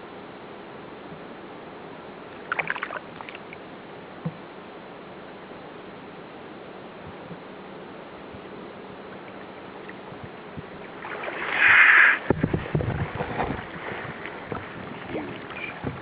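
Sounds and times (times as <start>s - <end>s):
water splashing: 2.4s - 3.6s, 9.2s - 16.0s
water sloshing against hull: 8.3s - 16.0s.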